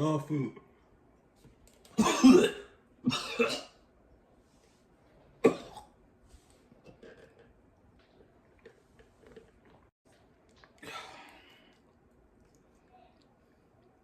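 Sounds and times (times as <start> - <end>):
man coughing: 2.0 - 3.7.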